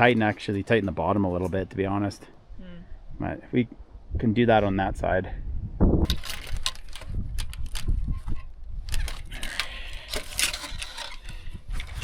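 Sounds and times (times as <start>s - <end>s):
wire fence gate rattling: 6.1s - 12.0s.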